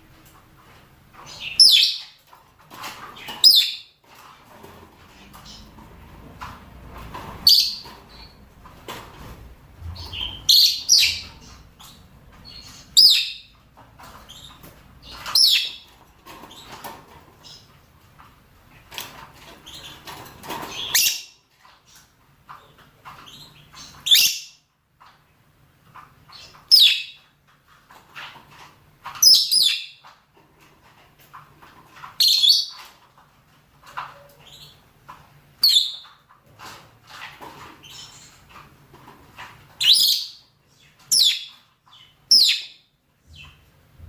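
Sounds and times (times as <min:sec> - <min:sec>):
lovebirds shrieking calls: 0:01.3 - 0:02.2, 0:03.2 - 0:03.9, 0:07.4 - 0:08.4, 0:09.9 - 0:13.6, 0:14.3 - 0:15.9, 0:26.3 - 0:27.2, 0:29.2 - 0:30.0, 0:39.8 - 0:43.5
lovebirds soft chattering: 0:09.8 - 0:13.6.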